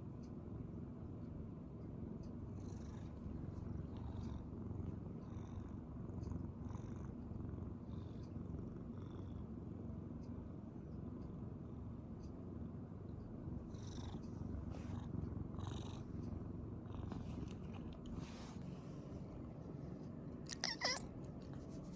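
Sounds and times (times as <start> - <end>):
cat purring: 2.5 - 9.5, 13.6 - 19.8, 20.5 - 21.9.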